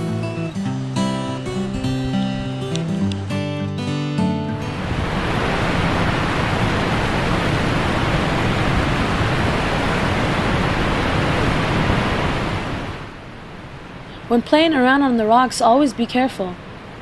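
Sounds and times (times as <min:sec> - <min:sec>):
waterfall rushing: 0:04.5 - 0:14.1.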